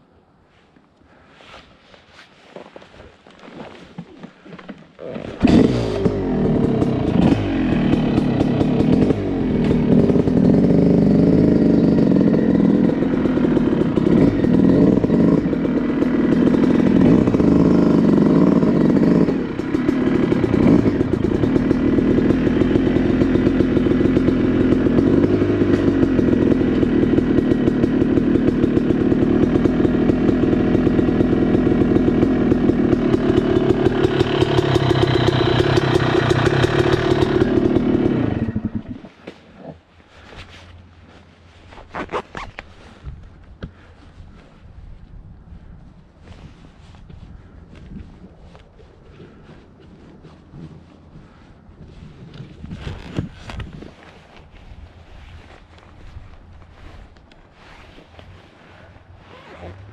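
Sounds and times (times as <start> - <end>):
two-stroke dirt bike engine revving: 5.0 - 39.4.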